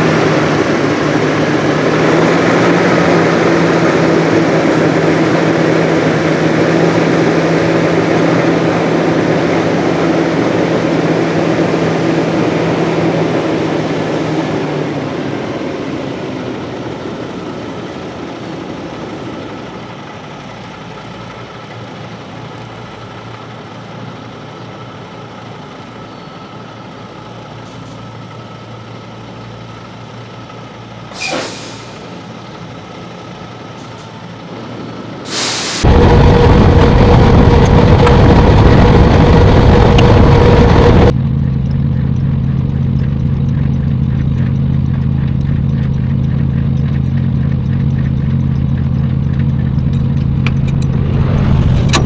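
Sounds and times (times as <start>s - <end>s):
truck diesel engine running: 0.0s - 52.0s
air hiss: 31.1s - 32.2s, 35.3s - 35.9s.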